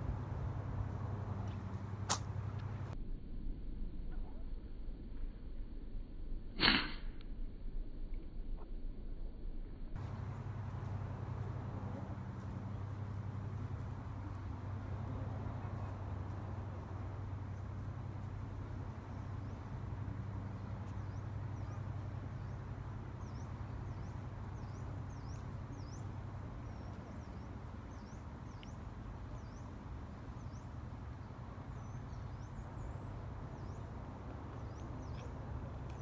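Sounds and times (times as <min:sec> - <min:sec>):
low background rumble: 0:00.0 - 0:06.6, 0:07.3 - 0:36.0
small birds chirping: 0:10.0 - 0:36.0.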